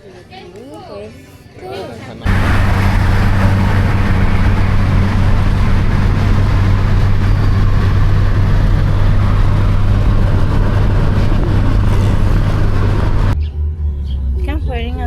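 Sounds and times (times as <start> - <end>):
loud rushing noise: 2.2 - 13.4
vehicle engine humming: 2.2 - 13.4.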